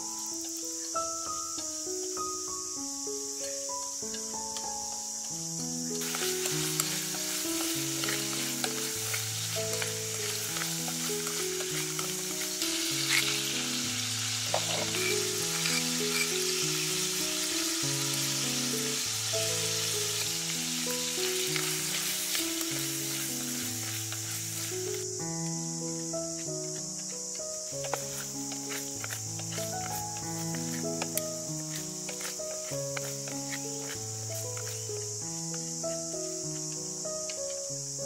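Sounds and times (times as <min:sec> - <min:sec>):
shrimp sizzling in hot oil: 0:00.0 - 0:38.0
soft background melody: 0:00.0 - 0:38.0
stirring clicks and scrapes: 0:06.0 - 0:13.5, 0:14.5 - 0:16.4, 0:26.5 - 0:35.1.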